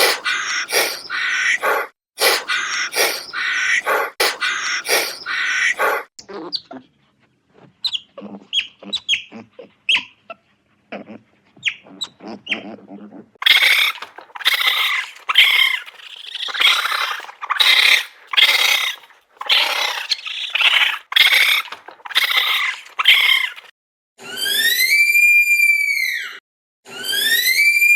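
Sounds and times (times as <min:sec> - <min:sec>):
animal squeaks and chirps: 0:00.0 - 0:06.0, 0:07.9 - 0:09.3, 0:13.4 - 0:23.7
loud harsh animal calls: 0:00.0 - 0:06.1, 0:13.4 - 0:23.7.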